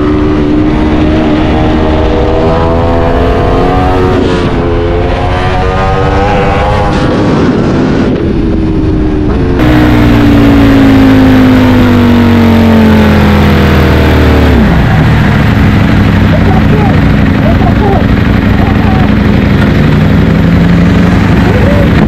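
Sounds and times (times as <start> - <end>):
wind rush: 0.0 - 12.5
motorcycle engine revving: 0.0 - 22.0.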